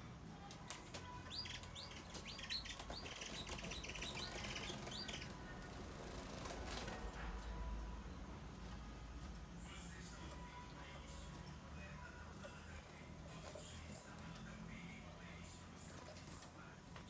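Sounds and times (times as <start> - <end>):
finch chirps and trills: 1.1 - 5.5.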